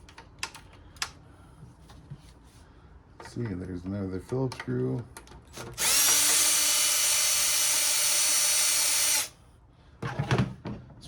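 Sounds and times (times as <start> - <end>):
cordless drill whining: 5.8 - 9.3.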